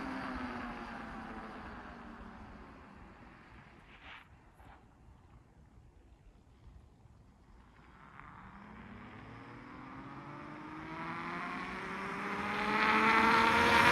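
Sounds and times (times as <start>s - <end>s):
tyres rushing on road: 0.0s - 3.9s, 7.7s - 13.9s.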